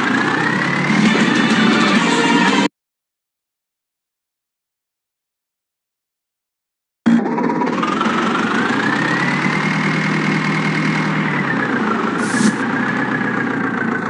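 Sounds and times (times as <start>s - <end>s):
heavy diesel engine running: 0.0s - 2.7s, 7.1s - 14.0s
short hiss: 12.2s - 12.6s.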